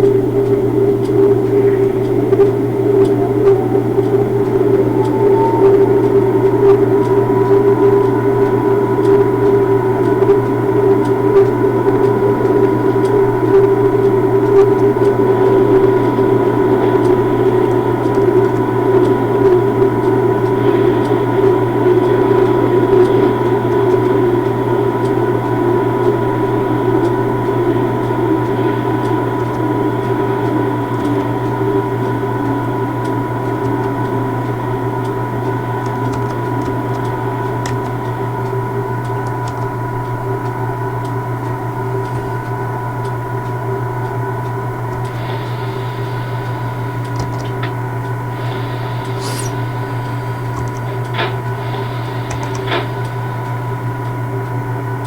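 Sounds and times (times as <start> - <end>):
locomotive mechanical hum: 0.0 - 55.0
thin steady tones: 0.0 - 55.0.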